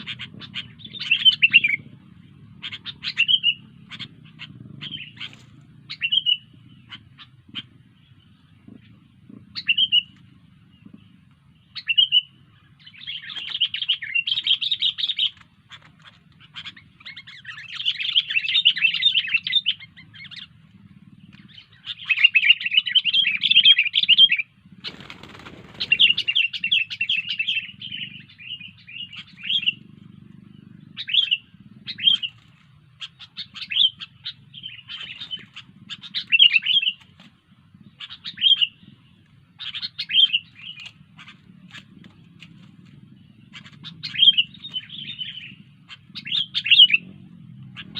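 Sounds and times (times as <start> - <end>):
bulbul singing: 0.0 - 47.9
noisy rustle: 24.6 - 27.0.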